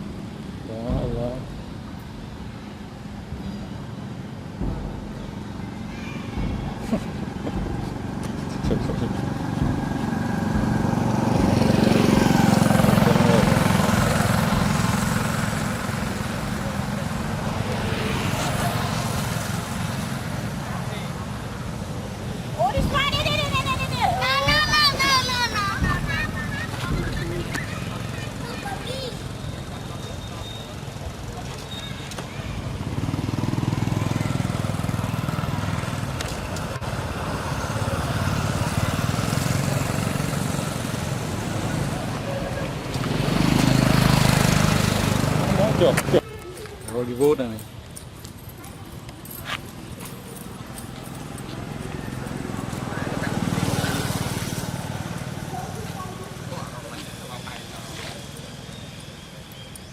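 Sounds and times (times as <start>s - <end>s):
vehicle engine running: 6.4s - 30.2s
vehicle engine passing: 6.7s - 31.6s, 32.6s - 46.2s, 49.8s - 58.8s.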